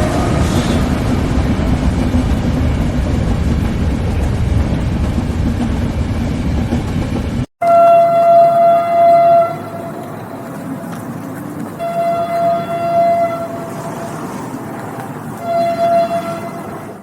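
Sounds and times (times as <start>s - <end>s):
train rumbling on rails: 0.0s - 17.0s
train horn blasts: 7.6s - 10.2s, 11.8s - 14.4s, 15.4s - 17.0s.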